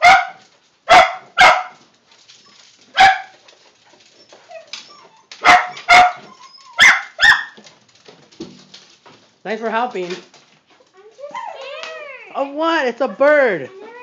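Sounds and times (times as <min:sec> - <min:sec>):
dog barking: 0:00.0 - 0:01.8, 0:03.0 - 0:03.4, 0:05.4 - 0:07.6.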